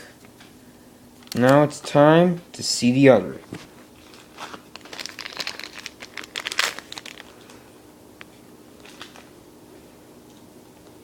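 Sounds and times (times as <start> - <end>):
foil pack tearing and crinkling: 4.0 - 7.6.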